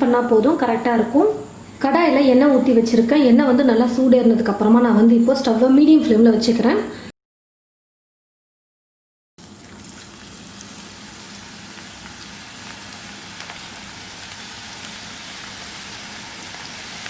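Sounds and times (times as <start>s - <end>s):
batter sizzling in hot oil: 9.4s - 17.0s
small crackling pops: 12.0s - 15.0s.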